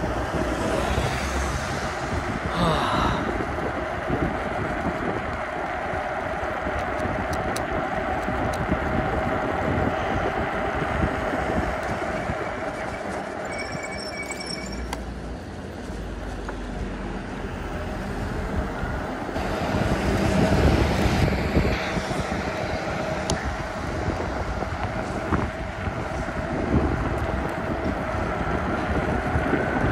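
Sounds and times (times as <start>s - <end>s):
wind and road noise: 0.0s - 29.9s
short high-pitched squeal: 12.1s - 15.0s.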